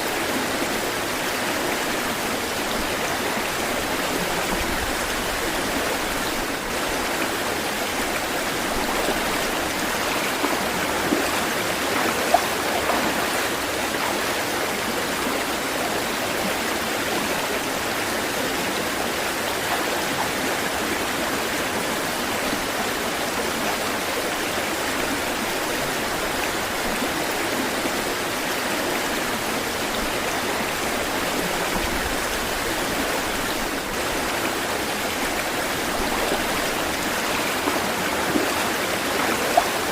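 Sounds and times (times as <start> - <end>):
water splashes: 0.0 - 15.3, 24.7 - 39.9
water flowing: 0.0 - 39.9.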